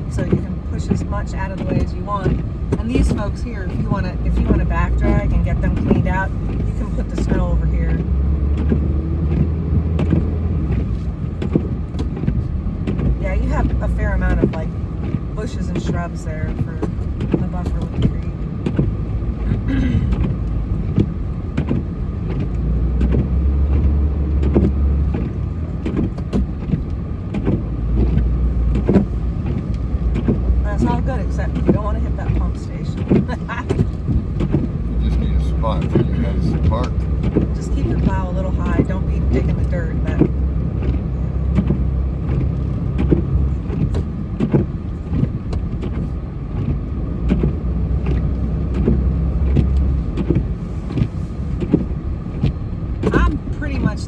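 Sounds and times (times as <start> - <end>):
vehicle engine rumbling: 0.0 - 54.0
short knocks and thumps: 0.1 - 54.0.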